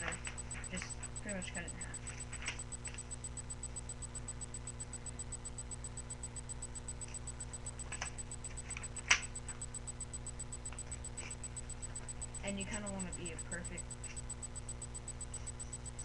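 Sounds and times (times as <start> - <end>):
fast even ticking: 0.0 - 16.0
steady low hum: 0.0 - 16.0
paper rustling: 2.0 - 3.0
sharp paper snap: 7.9 - 9.3.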